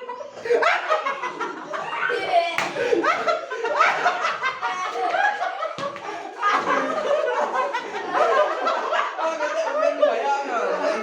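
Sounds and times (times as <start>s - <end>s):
people laughing: 0.0s - 11.0s
people talking: 1.1s - 11.0s
sharp slap or clap: 2.6s - 2.8s.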